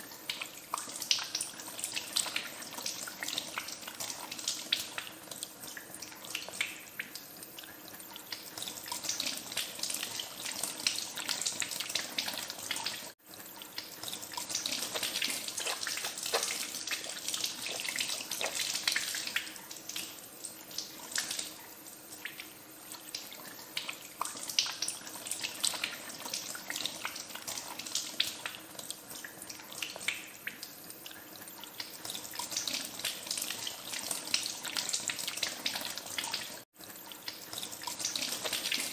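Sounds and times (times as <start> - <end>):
hands washed under water: 14.5 - 19.4.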